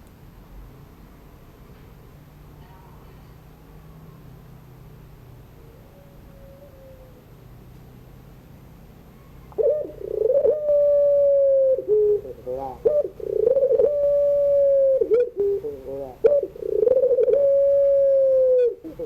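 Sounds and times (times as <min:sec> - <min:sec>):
dove cooing: 0:05.6 - 0:07.4, 0:09.5 - 0:19.0.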